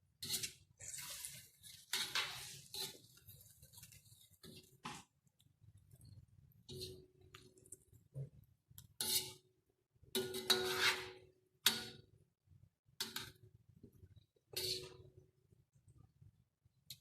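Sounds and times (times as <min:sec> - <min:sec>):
metal utensil scraping cooking pot: 0:00.1 - 0:04.7, 0:06.7 - 0:07.2, 0:09.0 - 0:09.4, 0:10.1 - 0:11.9, 0:14.5 - 0:15.1.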